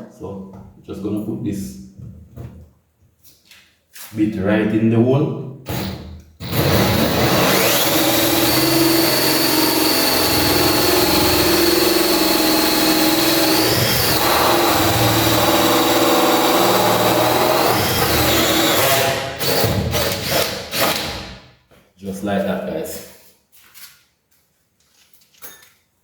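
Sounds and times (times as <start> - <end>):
hole saw cutting wood: 5.7 - 21.3
power drill whining: 5.7 - 21.3.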